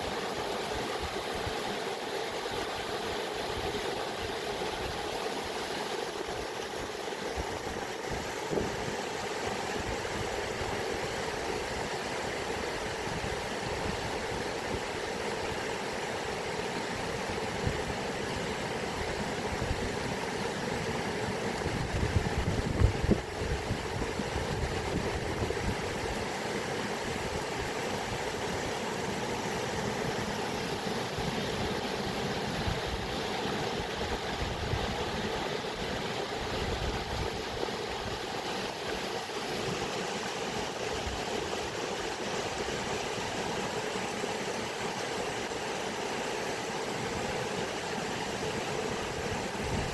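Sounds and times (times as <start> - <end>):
water rushing: 0.0 - 49.9.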